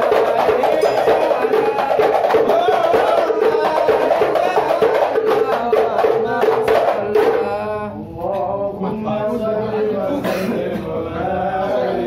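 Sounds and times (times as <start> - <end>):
frame drums beating: 0.0 - 7.6
group chanting: 0.0 - 12.0
person singing a long line: 0.0 - 12.0.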